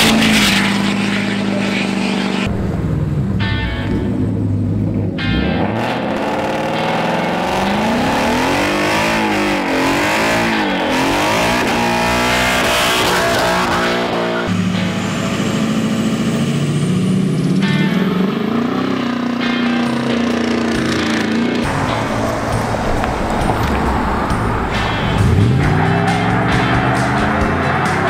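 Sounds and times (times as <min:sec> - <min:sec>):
engine note climbing in pitch: 0:00.0 - 0:28.0
vehicle engines revving: 0:00.0 - 0:28.0.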